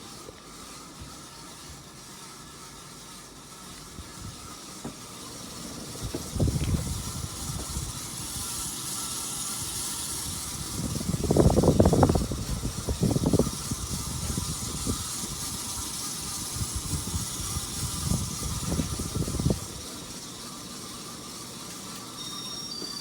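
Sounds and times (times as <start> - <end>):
ceiling fan airy hiss: 0.0 - 23.0.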